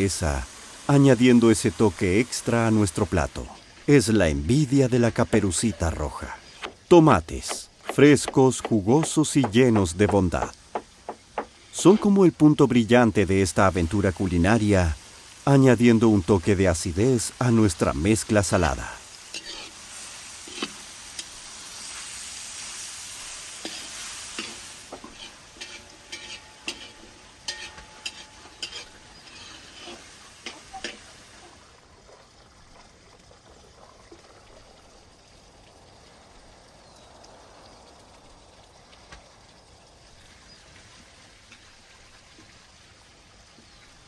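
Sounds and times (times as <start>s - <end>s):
vegetables sizzling in a frying pan: 0.0s - 3.0s, 13.6s - 31.8s
utensil scraping a pan: 19.3s - 19.8s, 23.6s - 31.1s.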